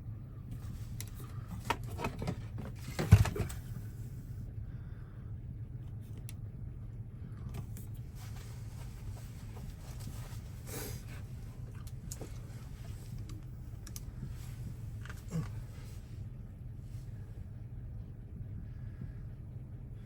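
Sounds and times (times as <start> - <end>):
low steady hum: 0.0 - 20.0
light clicks and taps: 11.7 - 14.1.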